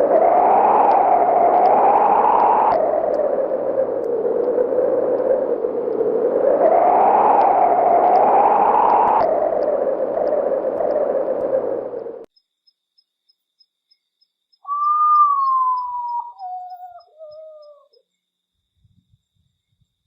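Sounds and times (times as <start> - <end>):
mournful bird song: 13.3 - 18.3.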